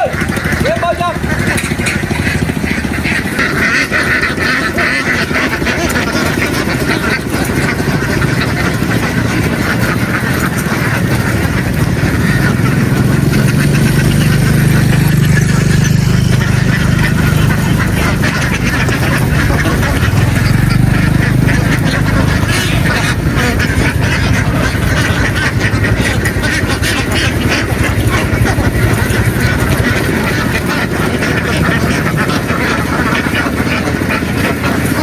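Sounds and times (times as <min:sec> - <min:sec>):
ducks quacking: 0:00.0 - 0:35.0
low motor hum: 0:00.0 - 0:35.0.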